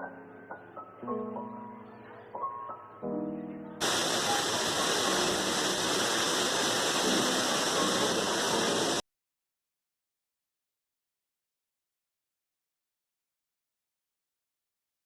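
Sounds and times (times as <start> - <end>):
piano music: 0.0 - 9.0
waterfall rushing water: 3.8 - 9.0.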